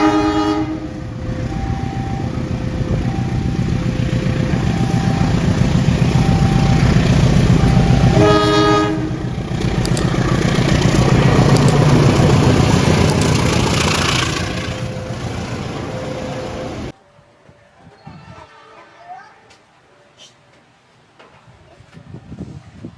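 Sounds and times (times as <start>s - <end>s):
train horn blast: 0.0s - 9.7s
two-tone warning signal: 0.0s - 16.9s
train passing with rumble: 0.0s - 17.1s.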